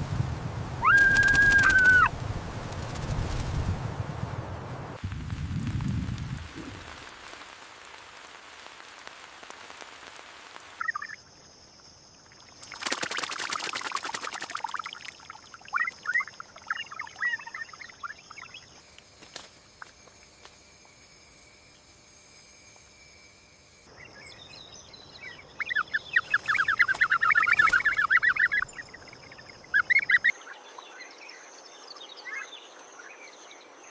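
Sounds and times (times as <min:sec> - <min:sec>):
steady hiss: 0:00.0 - 0:30.3
bird calls: 0:00.8 - 0:02.1, 0:15.6 - 0:18.7, 0:23.9 - 0:31.2.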